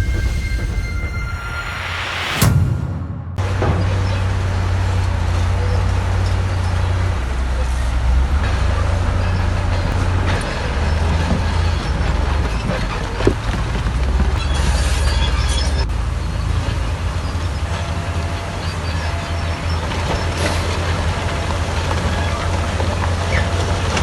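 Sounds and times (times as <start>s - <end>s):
brief squeal: 0.0s - 4.3s, 14.4s - 15.9s
metallic squeaks and clanks: 0.0s - 24.0s
diesel machinery engine rumble: 3.2s - 24.0s.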